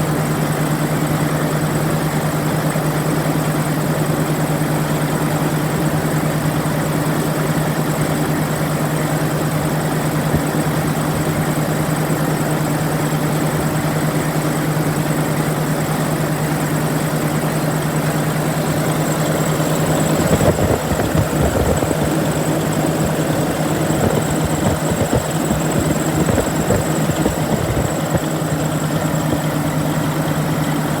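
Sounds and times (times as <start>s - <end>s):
diesel engine idling: 8.8s - 31.0s.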